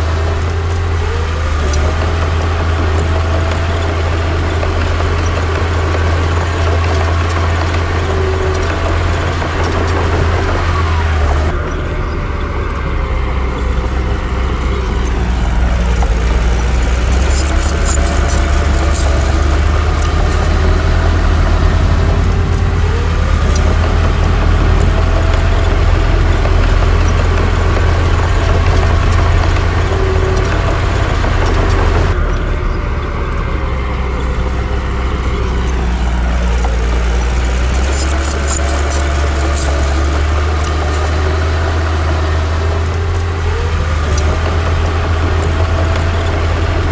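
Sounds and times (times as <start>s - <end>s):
heavy diesel engine running: 0.0s - 46.9s
metallic clicks and clanks: 12.4s - 32.6s, 33.3s - 46.9s.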